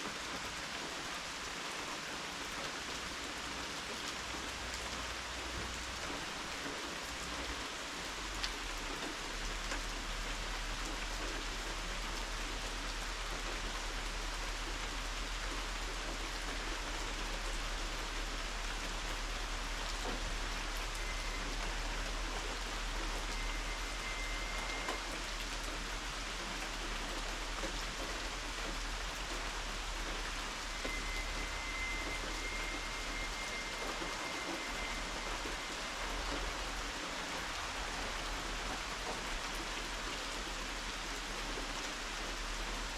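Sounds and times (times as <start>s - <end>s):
steady rain hiss: 0.0s - 42.9s
faint thin high tone: 20.9s - 22.0s, 23.2s - 25.2s, 30.6s - 35.8s.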